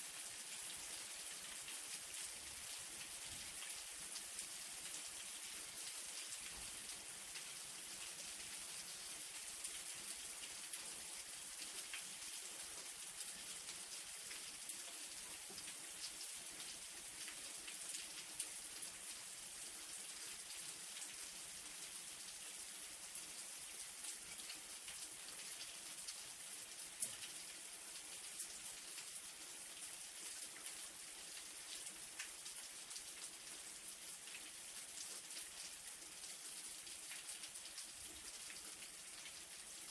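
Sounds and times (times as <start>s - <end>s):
light rain: 0.0s - 39.9s.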